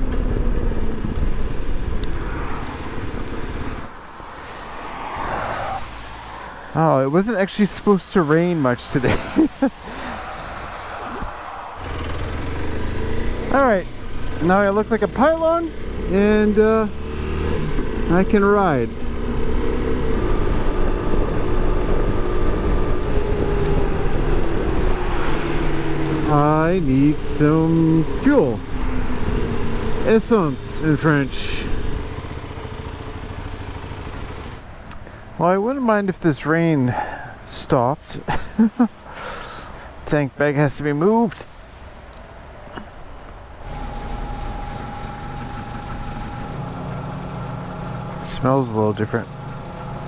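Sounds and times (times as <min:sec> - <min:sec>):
motorcycle engine slowing: 0:00.0 - 0:04.3, 0:11.8 - 0:34.6, 0:43.6 - 0:50.0
wind rumble: 0:00.0 - 0:14.4, 0:18.9 - 0:34.9.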